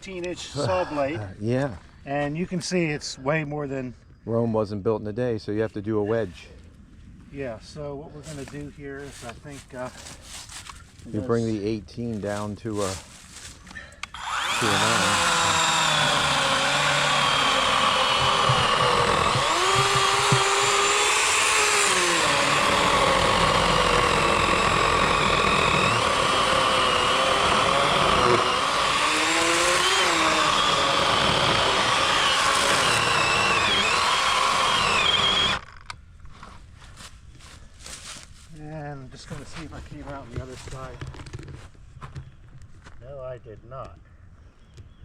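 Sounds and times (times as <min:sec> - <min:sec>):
electric chainsaw cutting log: 0:14.0 - 0:35.9.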